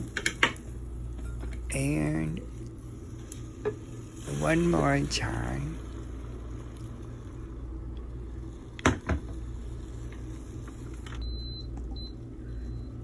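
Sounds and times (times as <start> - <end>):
rice cooker humming: 0.0 - 13.0.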